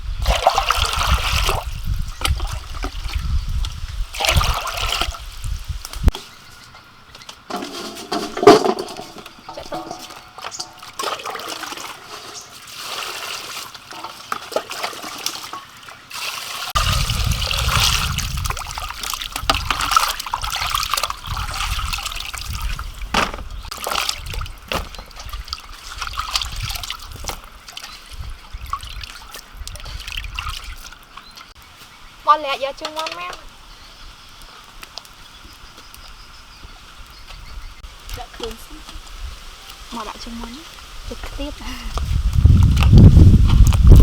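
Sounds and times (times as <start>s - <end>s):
water running and splashing: 0.2s - 6.2s, 7.2s - 33.7s, 36.8s - 44.0s
handling clicks and knocks: 7.2s - 11.0s, 23.1s - 24.1s.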